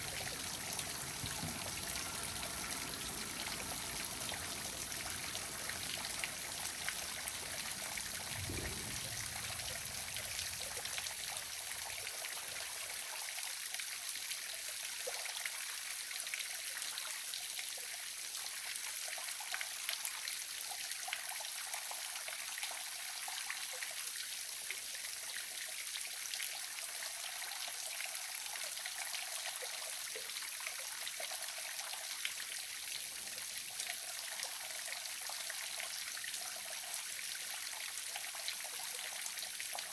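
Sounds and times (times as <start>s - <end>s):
waterfall splashing: 0.0s - 11.3s
low thump: 1.2s - 2.1s, 8.0s - 11.3s.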